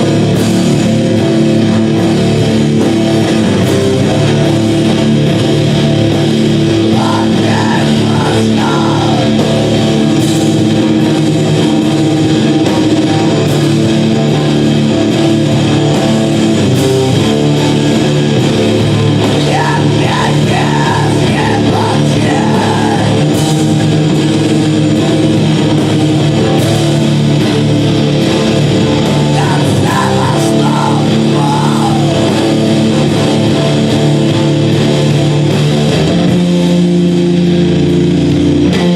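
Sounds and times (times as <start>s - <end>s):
distorted live rock music: 0.0s - 38.9s
wavering high voice or guitar: 6.2s - 10.3s, 19.0s - 24.0s, 28.4s - 33.5s.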